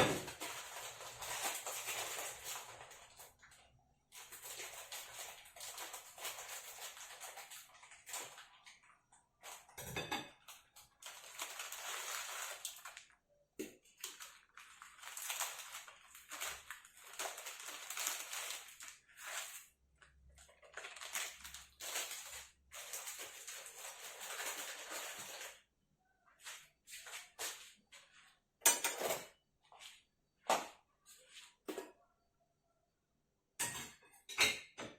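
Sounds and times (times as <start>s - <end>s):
plastic packaging crinkling: 0.0s - 9.8s, 10.4s - 13.2s, 13.9s - 25.7s.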